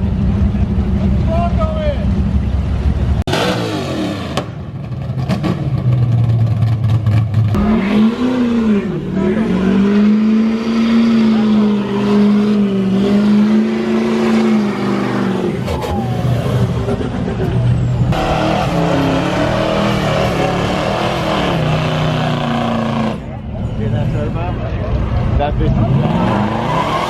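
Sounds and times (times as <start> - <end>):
car engines revving: 0.0 - 27.0
engine held at high revs: 3.2 - 4.5, 7.5 - 16.9, 18.1 - 23.4.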